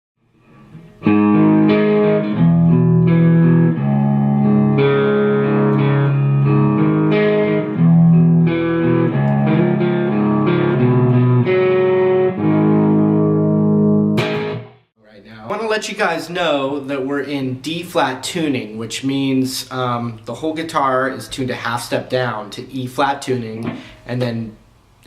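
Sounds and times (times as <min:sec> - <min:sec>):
distorted electric guitar chords: 0:00.4 - 0:14.9.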